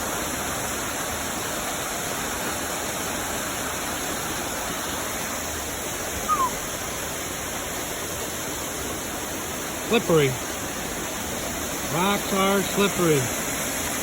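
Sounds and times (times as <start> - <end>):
waterfall and creek rushing: 0.0 - 14.0
short falling chirp: 6.3 - 6.6.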